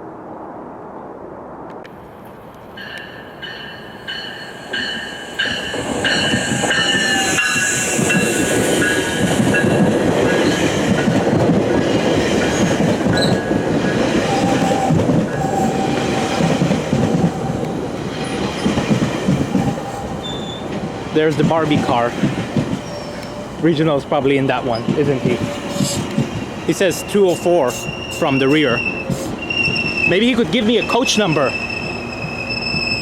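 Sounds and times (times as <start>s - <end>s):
train rumbling past: 0.0s - 33.0s
train wheel squeal: 2.8s - 10.8s, 12.4s - 13.6s, 14.2s - 17.6s, 19.6s - 20.8s, 21.6s - 23.6s, 24.7s - 33.0s
railway crossing bell ringing: 2.8s - 11.1s, 22.8s - 23.8s.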